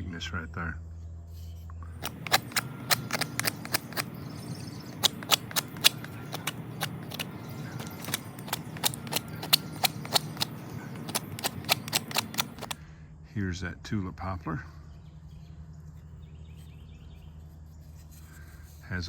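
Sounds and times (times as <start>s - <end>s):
knife whittling wood: 2.0s - 12.8s.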